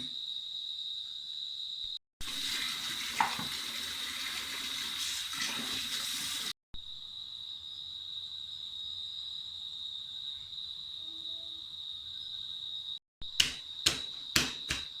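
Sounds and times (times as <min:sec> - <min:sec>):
crickets chirring: 0:00.0 - 0:02.0, 0:06.8 - 0:15.0
tap water running into sink: 0:02.2 - 0:06.5
knock: 0:13.4 - 0:15.0.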